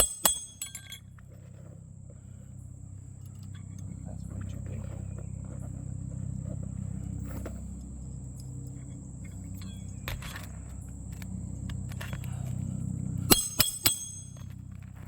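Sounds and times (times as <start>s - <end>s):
hatchet striking nail: 0.0s - 0.8s, 13.3s - 14.5s.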